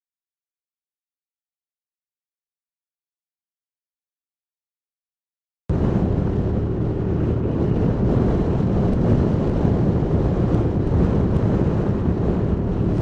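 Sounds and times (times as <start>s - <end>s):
wind buffeting microphone: 5.7s - 13.0s.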